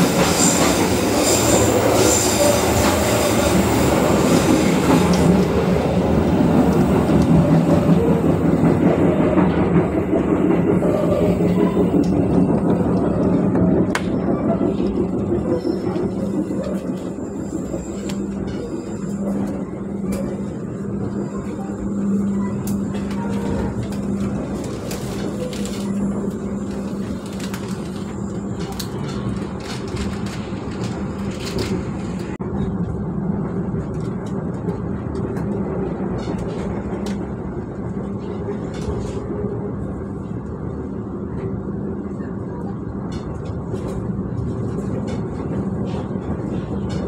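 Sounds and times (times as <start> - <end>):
train running noise inside coach: 0.0 - 47.0.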